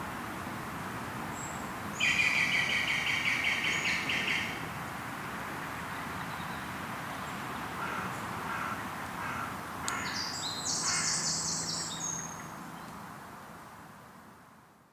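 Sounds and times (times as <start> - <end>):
steady background hiss: 0.0 - 14.9
caw-like bird calls: 7.8 - 10.2, 10.8 - 11.2.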